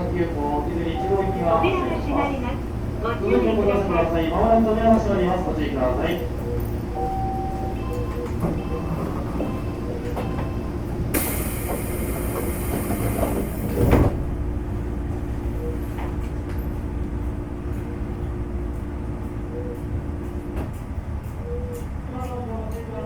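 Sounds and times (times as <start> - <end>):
train car humming: 0.0 - 23.0
sliding doors hissing shut: 11.1 - 14.2.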